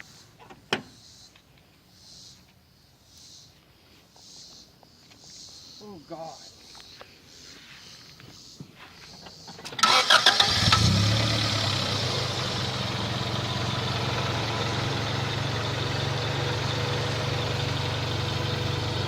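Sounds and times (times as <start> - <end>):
car starter cranking: 9.6 - 14.4
car engine idling: 9.8 - 19.0.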